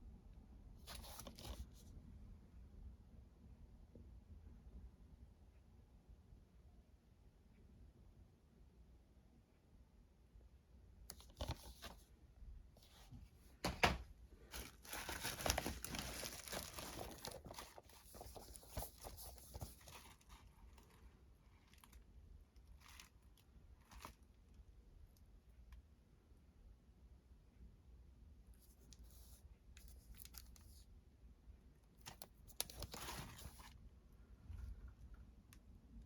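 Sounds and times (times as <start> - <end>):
packaging torn and crinkled: 14.5 - 18.8.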